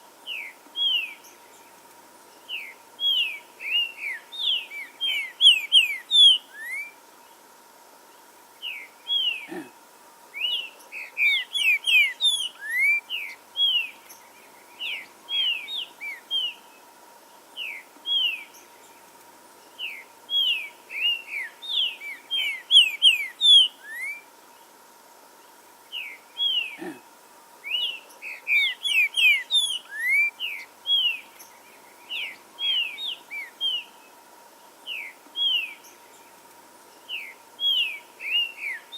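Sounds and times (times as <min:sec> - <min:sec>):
bird singing whistled notes: 0:00.2 - 0:01.6, 0:02.5 - 0:07.0, 0:10.4 - 0:16.7, 0:17.6 - 0:18.9, 0:19.8 - 0:24.3, 0:27.6 - 0:34.0, 0:34.8 - 0:36.3, 0:37.0 - 0:38.9.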